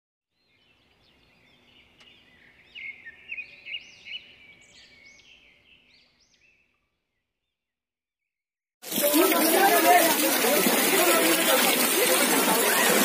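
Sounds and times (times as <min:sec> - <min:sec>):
birds chirping: 0:00.3 - 0:07.8.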